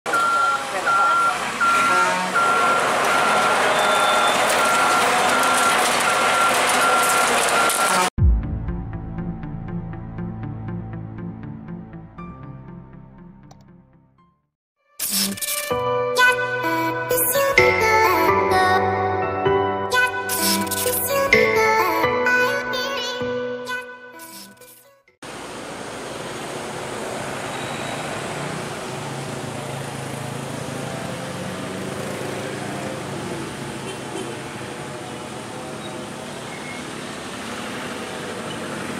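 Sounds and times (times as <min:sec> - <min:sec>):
engine and traffic noise: 0:00.1 - 0:08.1, 0:25.2 - 0:38.9
truck reversing alarm beeping: 0:00.1 - 0:08.1, 0:27.5 - 0:28.2.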